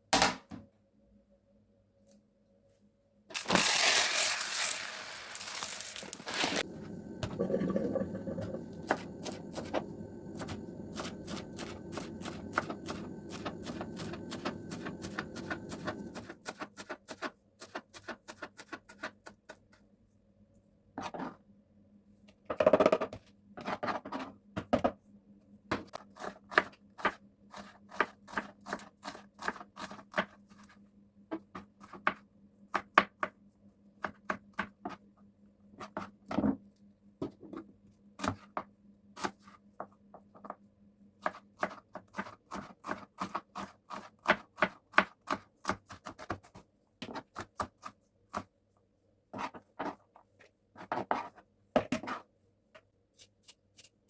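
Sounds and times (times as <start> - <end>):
steady low hum: 6.3 - 16.4.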